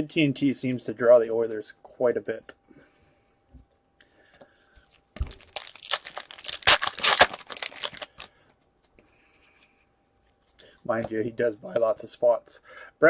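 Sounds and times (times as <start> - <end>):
foil wrapper tearing and crinkling: 5.2 - 8.4.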